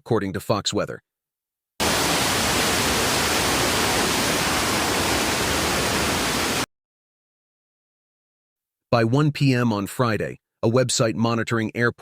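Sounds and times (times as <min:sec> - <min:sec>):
steady rushing hiss: 0:01.8 - 0:06.6.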